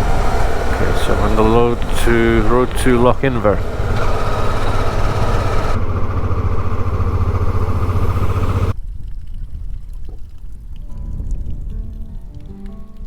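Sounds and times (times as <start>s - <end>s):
motorcycle engine running: 0.0s - 8.7s
wind and road noise: 0.0s - 12.2s
faint low rumble: 0.0s - 13.0s.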